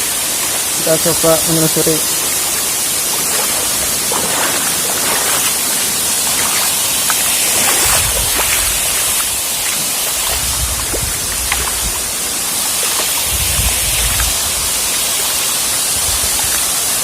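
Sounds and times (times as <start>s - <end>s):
waterfall rushing: 0.0s - 17.0s
low rumbles: 10.2s - 12.5s.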